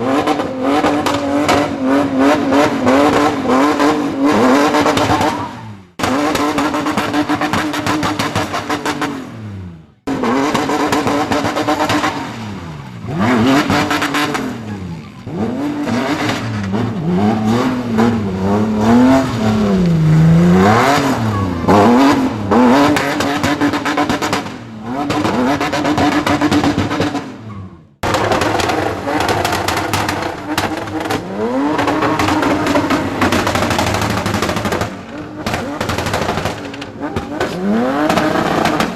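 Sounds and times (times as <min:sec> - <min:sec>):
car engine revving hard: 0:00.0 - 0:38.9.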